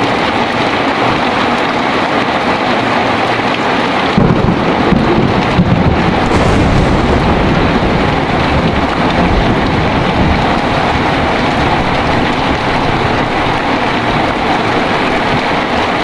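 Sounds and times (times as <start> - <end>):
heavy rain pouring: 0.0 - 16.0
low thunder rumble: 4.2 - 16.0.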